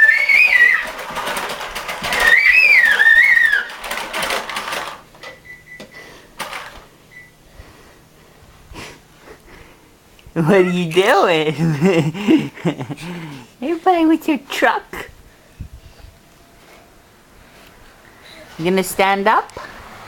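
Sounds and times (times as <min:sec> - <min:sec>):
wavering high whistle-like tune: 0:00.0 - 0:00.9, 0:02.2 - 0:03.7
plastic toy truck clicking and rattling: 0:00.0 - 0:05.4, 0:06.4 - 0:06.8.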